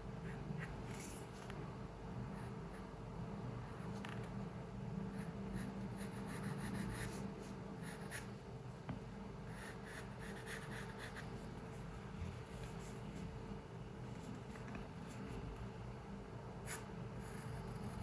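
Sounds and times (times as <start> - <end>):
low room hum: 0.0 - 18.0
pencil scratching on paper: 5.2 - 8.3, 9.5 - 11.4.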